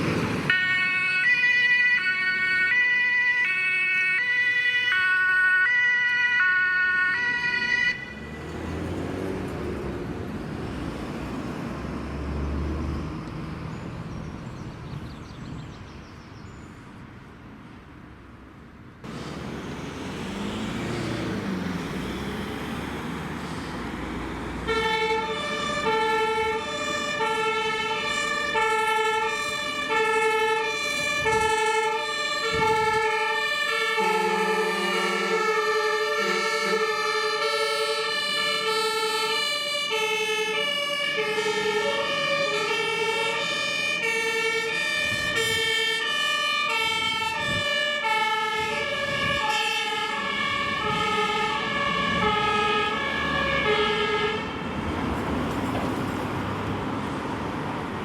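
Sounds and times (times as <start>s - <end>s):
heavy vehicles pulling away: 0.0s - 1.4s, 7.0s - 15.4s, 19.0s - 58.0s
two-tone siren: 0.5s - 8.5s, 24.6s - 54.6s
lower-pitched two-tone siren: 0.5s - 8.8s, 24.6s - 54.6s.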